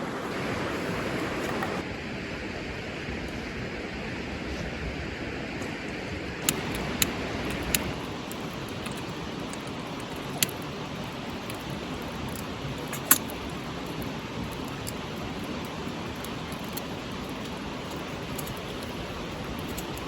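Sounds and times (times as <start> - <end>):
wood fire crackling: 6.2 - 20.0.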